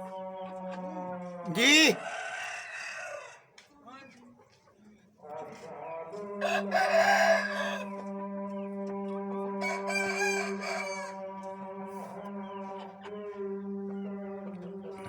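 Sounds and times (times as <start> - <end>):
rooster crowing: 0.0 - 3.5, 6.1 - 12.8.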